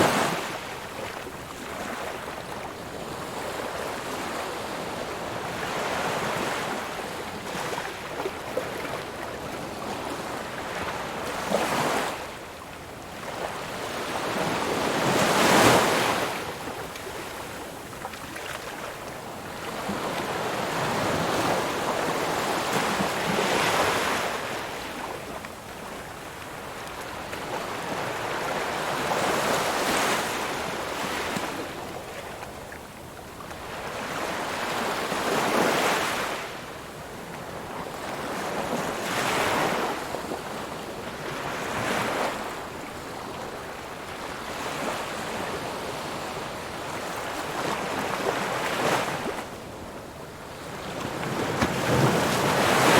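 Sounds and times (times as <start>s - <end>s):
ocean waves breaking on shore: 13.2s - 52.9s.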